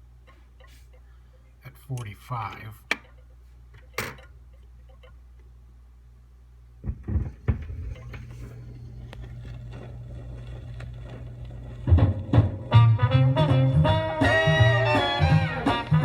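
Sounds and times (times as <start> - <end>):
record surface noise: 6.6 - 12.9
stylus thumps: 6.8 - 8.6
low hum: 6.8 - 16.0
instrumental music: 11.9 - 16.0.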